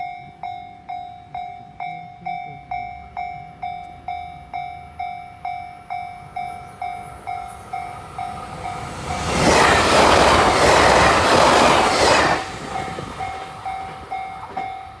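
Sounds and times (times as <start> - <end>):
train rushing past: 6.3 - 15.0
level-crossing bell dinging: 12.8 - 15.0.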